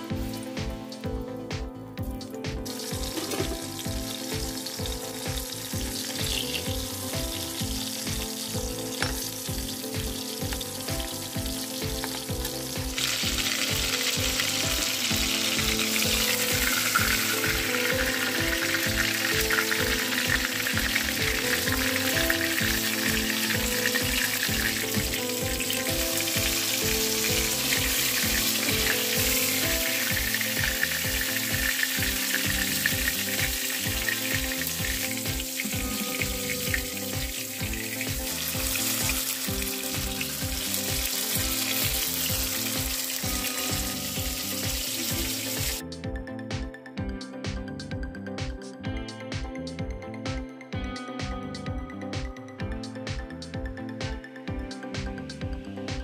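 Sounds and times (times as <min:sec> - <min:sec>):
background music with beat: 0:00.0 - 0:56.0
batter frying in hot oil: 0:02.0 - 0:45.8.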